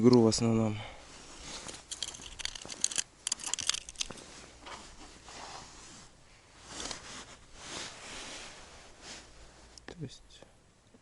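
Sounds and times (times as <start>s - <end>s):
crinkly rustling and handling: 1.1s - 9.8s.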